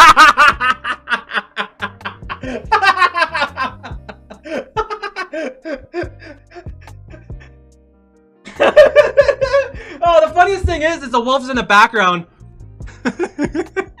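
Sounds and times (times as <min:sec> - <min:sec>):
man laughing hard: 0:00.0 - 0:07.6, 0:08.5 - 0:10.0, 0:12.9 - 0:14.0.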